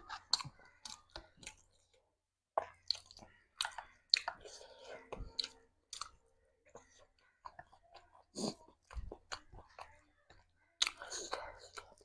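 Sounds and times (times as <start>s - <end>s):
close-miked chewing: 0.0s - 12.0s.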